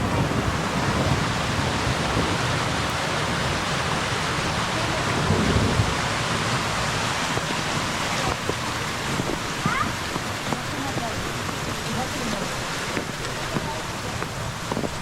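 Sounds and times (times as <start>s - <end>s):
snowstorm rushing: 0.0s - 15.0s
wind gusting on microphone: 0.0s - 15.0s.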